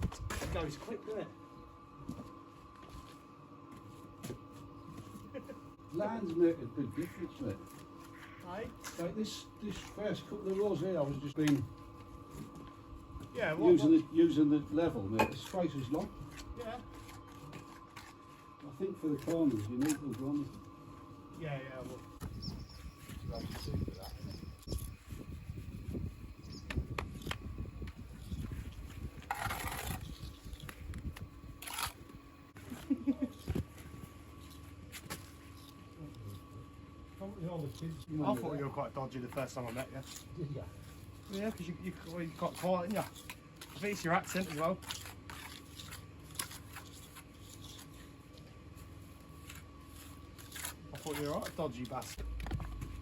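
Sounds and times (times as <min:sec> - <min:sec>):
scrapes on stone wall: 0:28.2 - 0:30.8, 0:39.2 - 0:48.3, 0:49.2 - 0:52.3.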